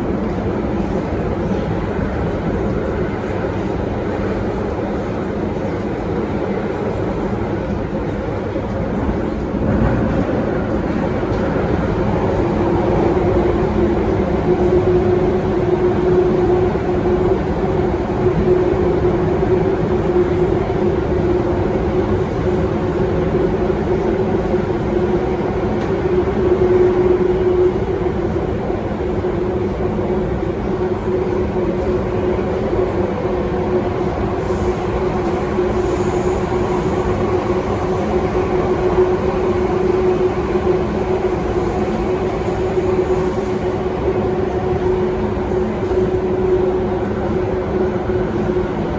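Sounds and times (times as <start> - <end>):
metro train wheels rumbling: 0.0 - 48.9
train motor hum: 29.1 - 48.5.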